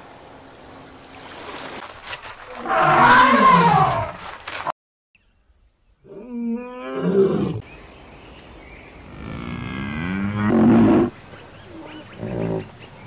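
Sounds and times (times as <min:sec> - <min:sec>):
lion roaring: 0:09.2 - 0:11.1, 0:11.7 - 0:12.7.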